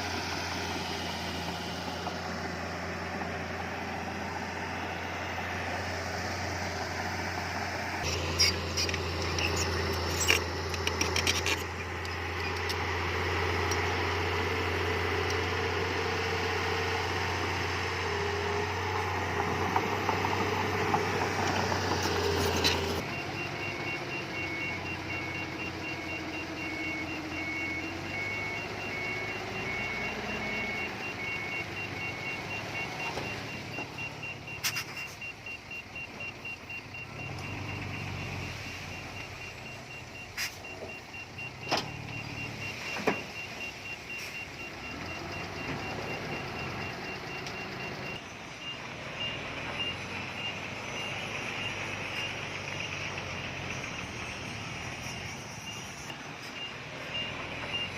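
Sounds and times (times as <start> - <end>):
diesel engines running: 0.0 - 57.9
high electronic beep: 8.0 - 12.7, 22.5 - 57.9.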